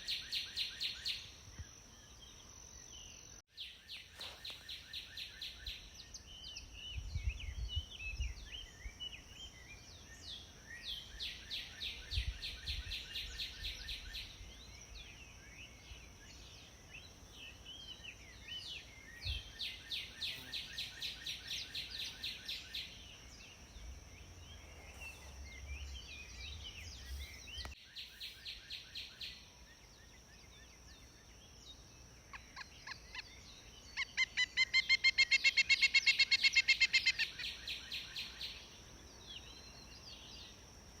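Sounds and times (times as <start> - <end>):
woodpecker calls: 34.0 - 38.4.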